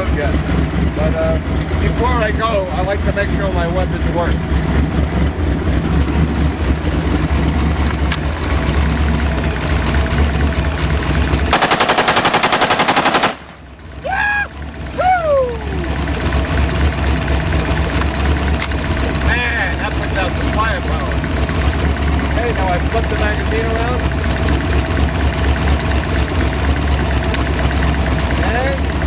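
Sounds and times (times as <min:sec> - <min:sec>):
car engine idling: 0:00.0 - 0:29.0
automatic gunfire: 0:11.5 - 0:13.7.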